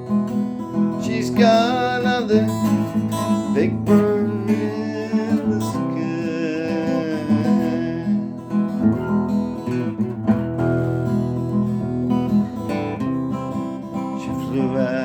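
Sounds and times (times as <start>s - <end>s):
strummed acoustic guitar: 0.0s - 15.0s
person singing: 0.9s - 9.0s, 14.0s - 15.0s.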